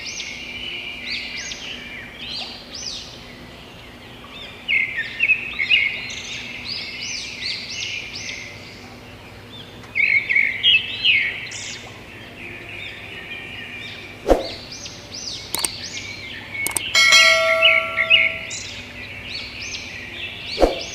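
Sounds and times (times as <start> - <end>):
songbirds chirping: 0.0 - 20.9
sharp clicks: 15.6 - 15.8, 16.7 - 18.4
ringing bell-like tone: 16.7 - 18.8.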